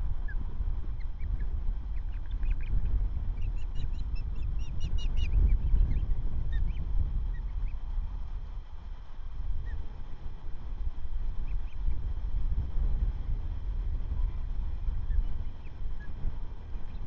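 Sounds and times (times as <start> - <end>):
low rumble: 0.0 - 17.0
ospreys chirping: 0.2 - 7.8.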